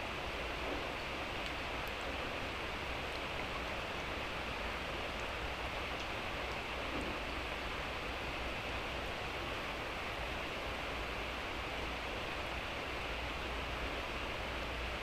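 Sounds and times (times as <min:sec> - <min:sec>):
light rain hissing: 0:00.0 - 0:15.0.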